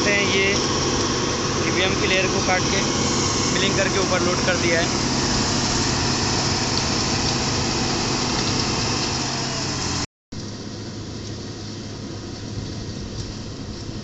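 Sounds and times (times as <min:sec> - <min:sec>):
milling machine grinding hiss: 0:00.0 - 0:10.0
diesel engine drone: 0:00.0 - 0:14.0.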